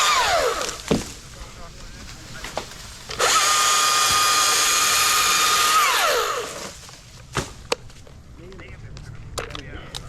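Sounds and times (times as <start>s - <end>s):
chainsaw engine revving and idling: 0.0s - 0.9s, 3.1s - 6.8s.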